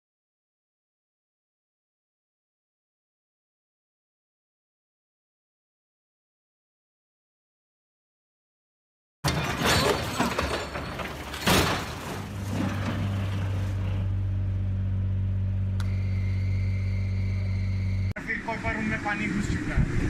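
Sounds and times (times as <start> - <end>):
low mechanical drone: 11.9 - 20.0.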